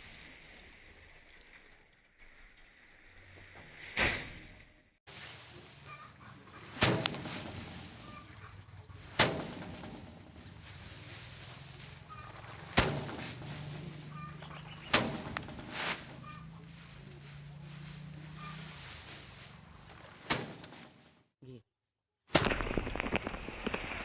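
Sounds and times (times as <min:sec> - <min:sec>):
sharp knocks: 0:12.3 - 0:16.2.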